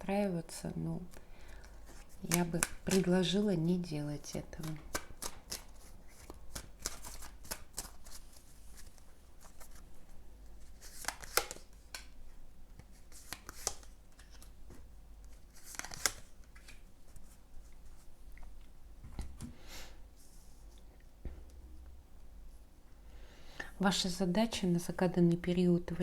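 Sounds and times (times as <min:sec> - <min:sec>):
cards snapping: 0:01.1 - 0:03.1, 0:04.3 - 0:08.2, 0:10.8 - 0:12.2, 0:13.2 - 0:14.4, 0:15.6 - 0:16.8
cards shuffling: 0:01.1 - 0:03.4, 0:04.2 - 0:09.9, 0:10.6 - 0:12.1, 0:12.9 - 0:14.5, 0:15.3 - 0:17.3.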